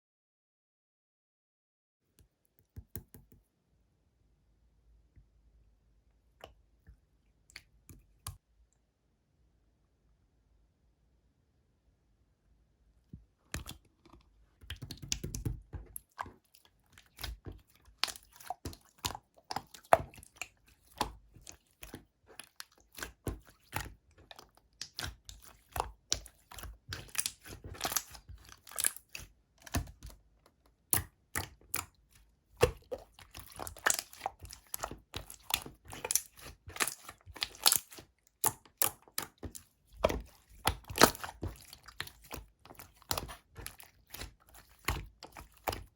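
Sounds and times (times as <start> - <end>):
slime squishing with sticky clicks: 13.4 - 45.9.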